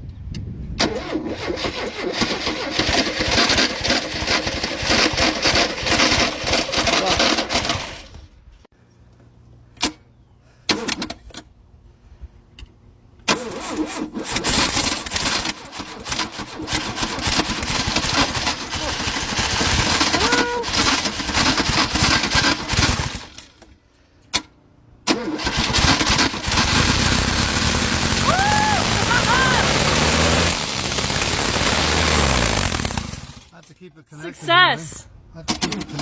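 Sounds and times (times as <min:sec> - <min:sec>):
starter motor cranking engine: 0:00.8 - 0:08.2, 0:13.2 - 0:23.7, 0:25.0 - 0:33.6.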